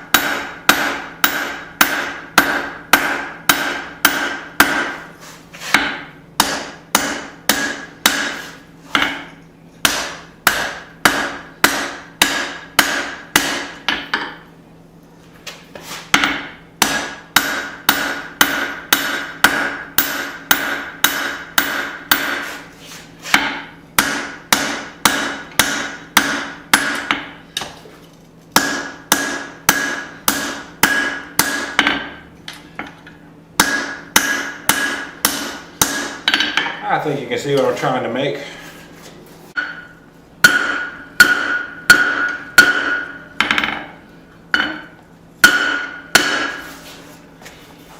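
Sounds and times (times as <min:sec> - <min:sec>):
hammer striking steel on anvil: 0:00.0 - 0:05.0, 0:05.7 - 0:14.4, 0:16.1 - 0:22.5, 0:23.3 - 0:27.7, 0:28.6 - 0:32.2, 0:33.6 - 0:36.8, 0:39.5 - 0:46.7
anvil ringing: 0:39.6 - 0:43.9.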